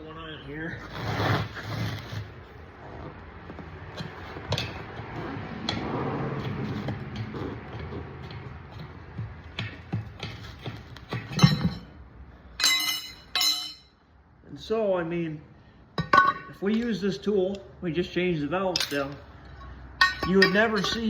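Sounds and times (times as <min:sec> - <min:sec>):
low shop hum: 0:00.0 - 0:21.0
tire and rim knocks: 0:03.8 - 0:12.0.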